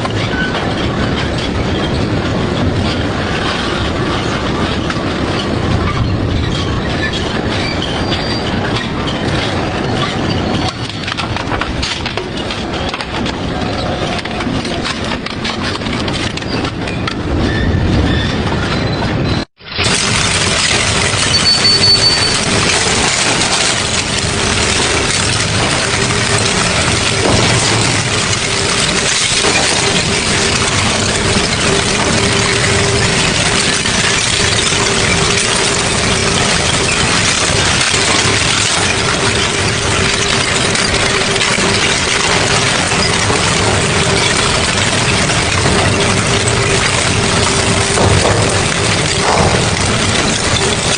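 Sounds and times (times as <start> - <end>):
shredder crunching scrap: 19.8 - 50.9.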